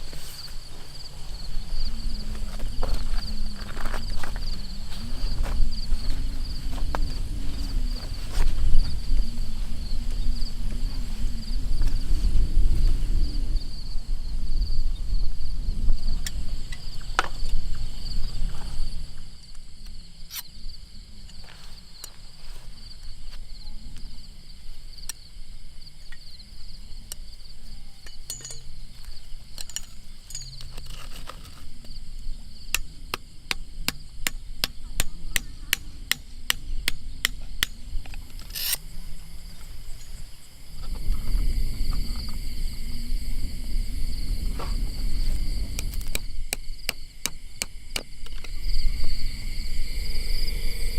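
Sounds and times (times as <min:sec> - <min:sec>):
low rumbling noise: 0:00.0 - 0:21.3
high insect drone: 0:00.0 - 0:50.9.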